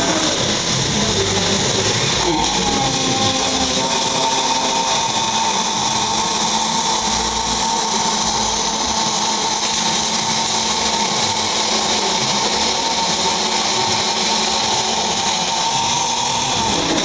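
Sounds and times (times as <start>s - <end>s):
welding arc hissing: 0.0s - 17.0s.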